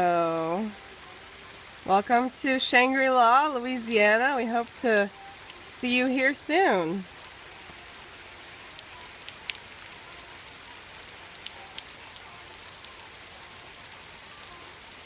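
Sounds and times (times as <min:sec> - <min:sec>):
rain falling: 0:00.0 - 0:15.0
sharp drip ticks: 0:01.6 - 0:06.4, 0:08.7 - 0:10.0, 0:11.1 - 0:13.7.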